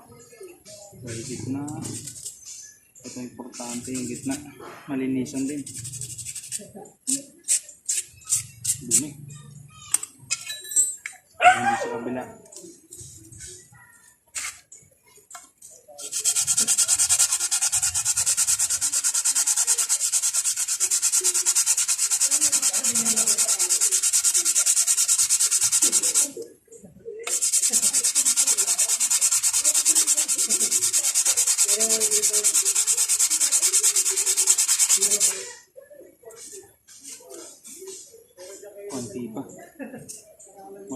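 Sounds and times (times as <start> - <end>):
brake pad sanding on sandpaper: 1.1 - 4.4, 5.3 - 9.1, 14.3 - 14.7, 15.5 - 26.4, 27.3 - 35.6, 36.3 - 38.6.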